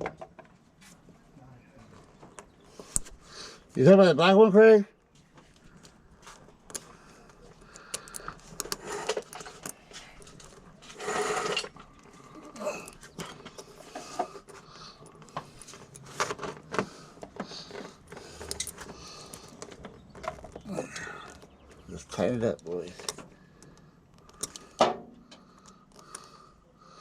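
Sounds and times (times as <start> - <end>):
tools and metal hardware clicking: 7.6 - 26.3.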